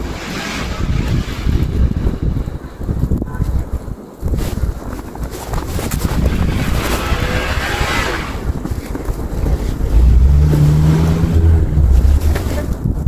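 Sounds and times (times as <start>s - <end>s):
blowing snow hiss: 0.0s - 3.2s, 5.7s - 9.0s, 9.7s - 12.6s
wind buffeting microphone: 0.0s - 13.0s
vehicle engine hum: 5.7s - 13.0s.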